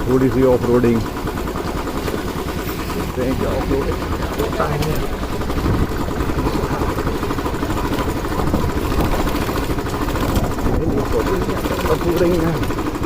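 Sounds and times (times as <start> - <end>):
motorcycle engine running: 0.0 - 13.0
road noise: 0.0 - 13.0
wind noise: 5.4 - 11.3.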